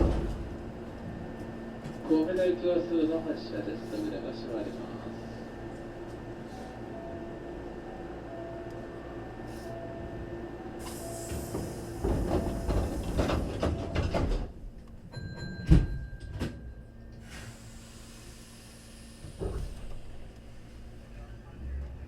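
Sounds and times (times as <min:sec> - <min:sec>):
train doors closing with clatter: 0:00.0 - 0:02.6, 0:09.5 - 0:20.4
door warning tones: 0:06.9 - 0:16.6.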